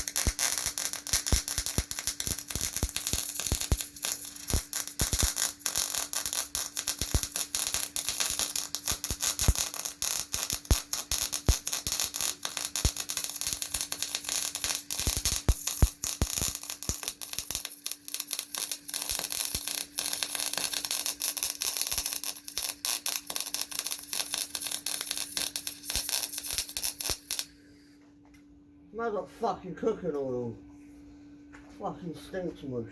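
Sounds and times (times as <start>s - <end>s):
welding arc crackling: 0.0s - 27.5s
steady low hum: 0.0s - 32.9s.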